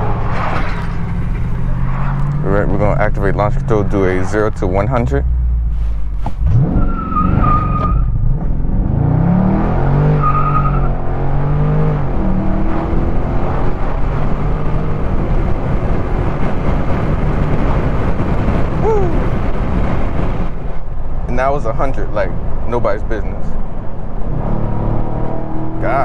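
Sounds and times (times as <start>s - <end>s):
car engine accelerating hard: 0.0s - 20.8s
wind and road noise: 0.0s - 26.0s
tyre squeals: 5.7s - 8.2s.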